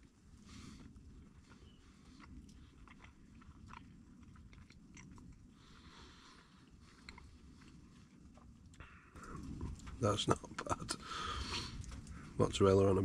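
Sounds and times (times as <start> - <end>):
person chewing food: 0.0 - 9.9
soft crunches: 0.0 - 12.4.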